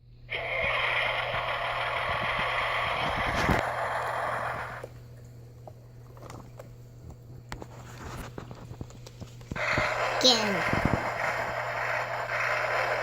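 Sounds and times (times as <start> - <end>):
toy engine sound effect: 9.6 - 13.0.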